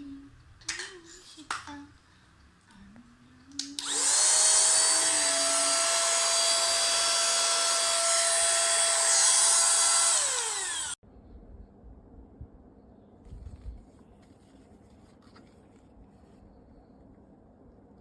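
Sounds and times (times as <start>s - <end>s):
vacuum motor high whine: 3.8s - 11.0s.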